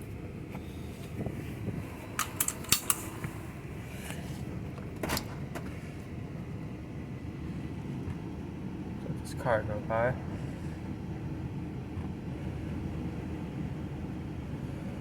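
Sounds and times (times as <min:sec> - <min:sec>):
sharp clicks and rattles: 0:02.2 - 0:03.2.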